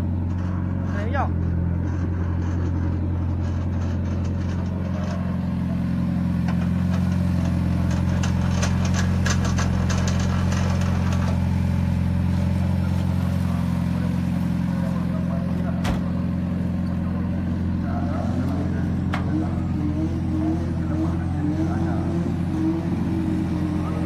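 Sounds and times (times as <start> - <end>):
car engine idling: 0.0 - 24.0
clicks and rattles: 0.2 - 5.4, 6.4 - 11.6.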